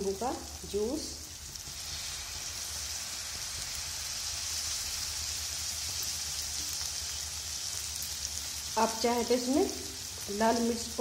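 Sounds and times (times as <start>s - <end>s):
sizzling hiss: 0.0s - 11.0s
liquid poured into hot pan: 1.6s - 4.8s.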